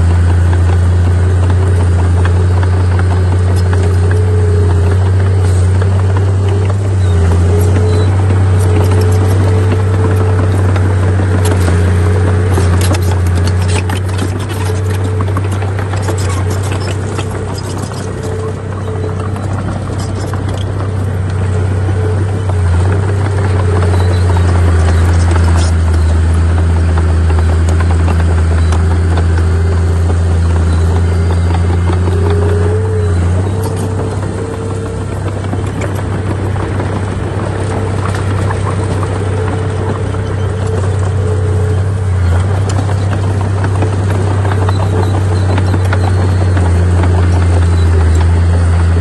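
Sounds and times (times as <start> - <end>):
bulldozer diesel engine droning: 0.0 - 49.0
rattling and clanking: 0.0 - 49.0.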